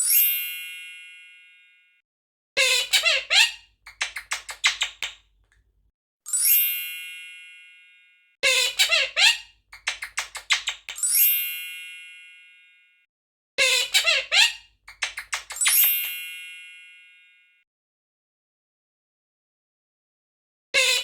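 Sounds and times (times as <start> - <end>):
parrot squeaking and chattering: 2.6 - 5.3, 8.5 - 11.1, 13.6 - 16.1
bell-like ding: 6.4 - 8.3.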